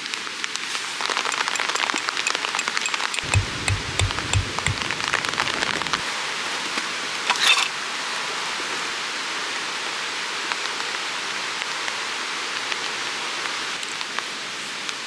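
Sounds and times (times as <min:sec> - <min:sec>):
running water rushing: 0:01.0 - 0:06.2.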